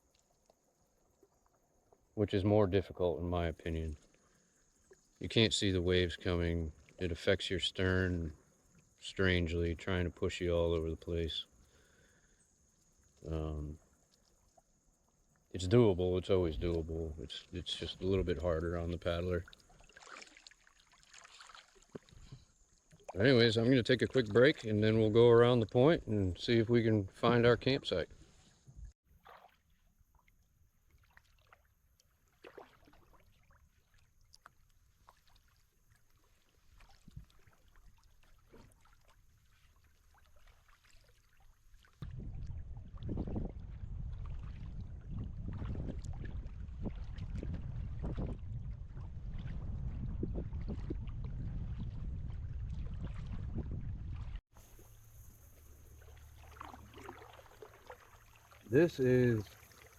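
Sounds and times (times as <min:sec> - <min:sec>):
small water splashes and drips: 0:00.0 - 0:59.9
wind noise: 0:42.0 - 0:54.4
water rushing: 0:54.6 - 0:59.9.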